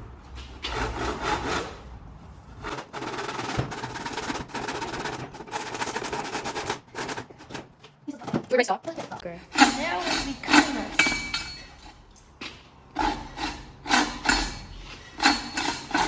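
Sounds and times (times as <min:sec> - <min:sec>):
bow saw rasping through wood: 0:00.4 - 0:07.6, 0:09.4 - 0:11.0, 0:13.0 - 0:16.0.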